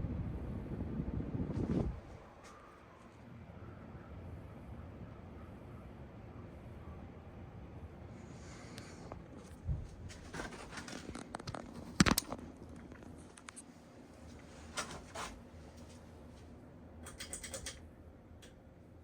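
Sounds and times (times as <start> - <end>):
ceiling fan humming: 0.0 - 19.0
scratchy clicks and rattles: 17.0 - 17.8.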